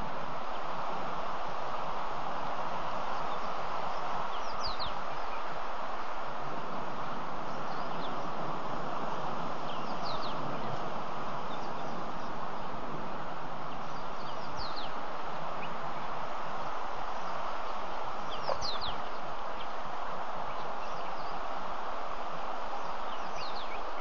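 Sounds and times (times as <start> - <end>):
steady hiss: 0.0 - 24.0
high falling bird calls: 9.6 - 12.8, 17.1 - 19.8.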